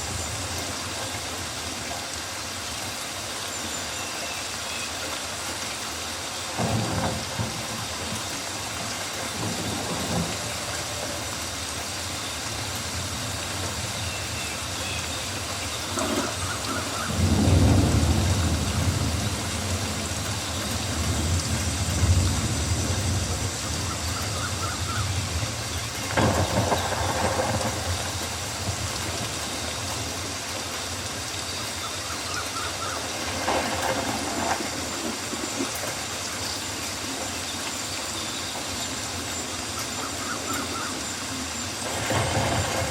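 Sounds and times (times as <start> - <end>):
rain falling on foliage: 0.0 - 42.9.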